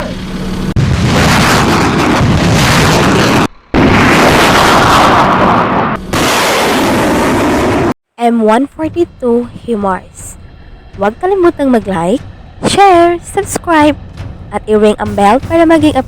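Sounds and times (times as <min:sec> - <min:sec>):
rocket exhaust blast: 0:00.8 - 0:08.0.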